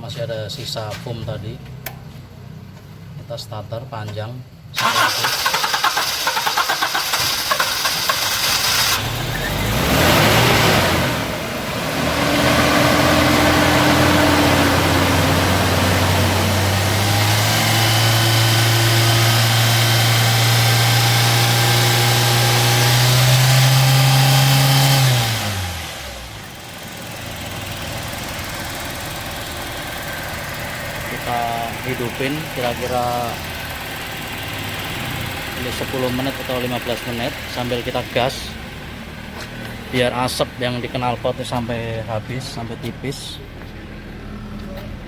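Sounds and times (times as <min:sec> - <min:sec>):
petrol engine cranking: 0:04.8 - 0:09.8
car engine revving: 0:04.8 - 0:43.2.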